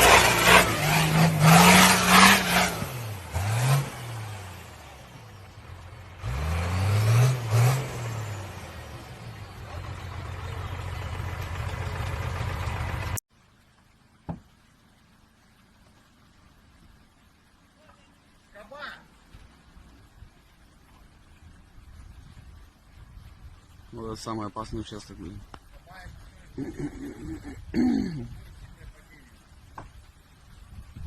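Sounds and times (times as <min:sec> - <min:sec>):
vehicle engine revving: 0:00.0 - 0:13.2.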